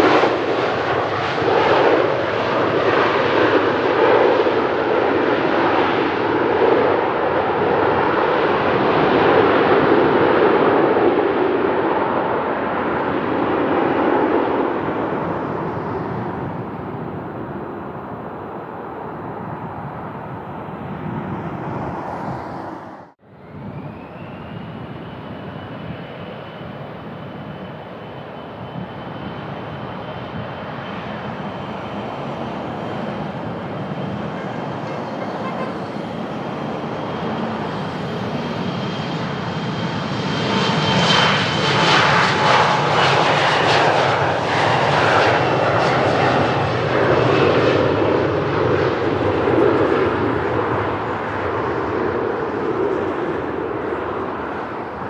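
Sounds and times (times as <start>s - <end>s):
airplane engines whining: 0.0s - 55.0s
wind buffeting microphone: 0.0s - 55.0s
rushing noise: 14.7s - 24.3s.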